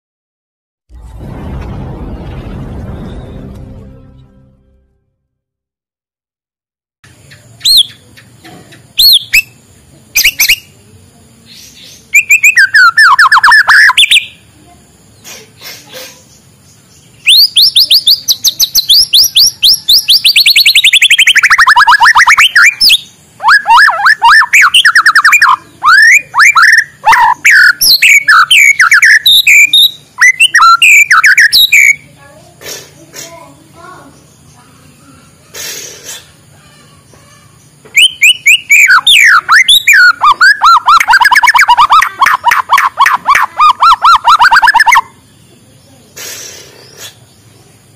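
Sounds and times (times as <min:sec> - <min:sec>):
bird singing whistles and trills: 0:07.6 - 0:08.0, 0:09.0 - 0:09.6, 0:11.6 - 0:14.4, 0:17.0 - 0:32.1, 0:37.9 - 0:45.6.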